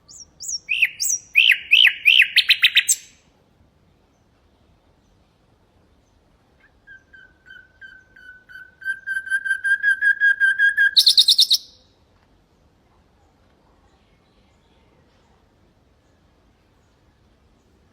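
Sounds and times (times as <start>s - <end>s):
nightingale singing: 0.0s - 3.2s, 6.0s - 11.9s.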